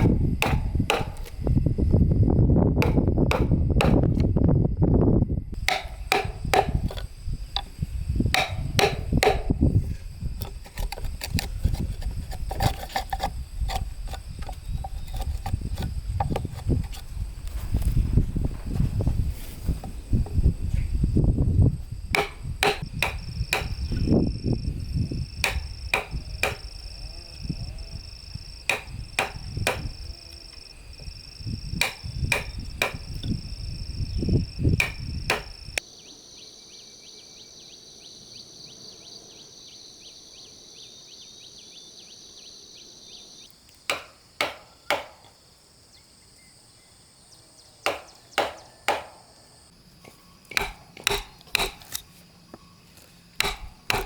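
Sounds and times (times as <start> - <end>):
tool knocking on wood: 0.0 - 1.3, 2.8 - 4.2, 5.6 - 7.0, 8.3 - 9.6, 22.1 - 23.8, 25.4 - 26.6, 28.7 - 29.9, 31.8 - 33.1, 34.8 - 35.5, 43.9 - 45.3, 47.9 - 49.2, 50.5 - 52.0, 53.4 - 54.0
insect trill: 0.0 - 54.0.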